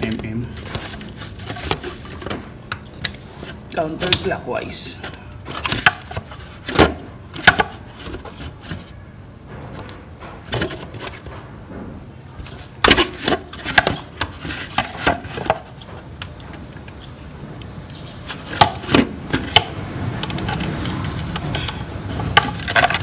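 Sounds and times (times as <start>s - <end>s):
socket wrench clicking: 20.2s - 21.9s.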